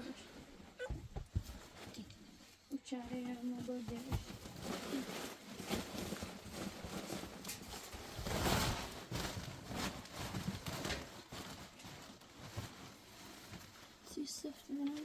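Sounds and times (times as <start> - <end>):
irregular knocks and thuds: 0.7 - 2.0, 3.1 - 4.7.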